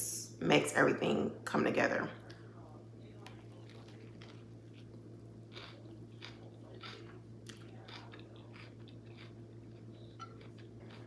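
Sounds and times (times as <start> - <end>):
steady low hum: 0.0 - 11.0
person chewing crunchy food: 3.1 - 11.0.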